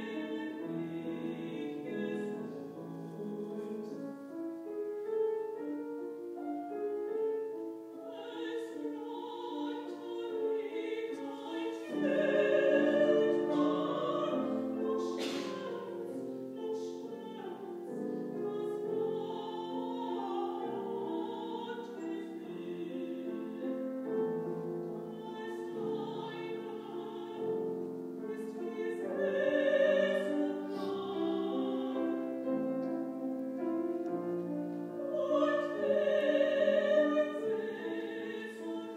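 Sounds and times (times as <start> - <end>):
woman singing operatically: 0.0 - 3.9, 8.0 - 24.3, 24.9 - 32.7, 34.9 - 38.9
piano accompaniment: 0.0 - 38.9.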